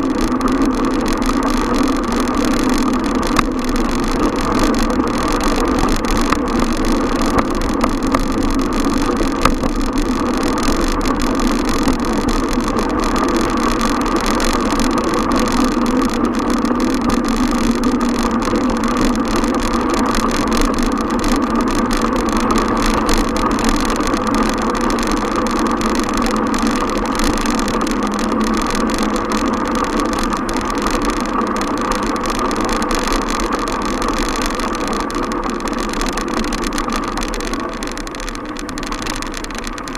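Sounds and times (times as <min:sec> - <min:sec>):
city road noise: 0:00.0 - 0:39.9.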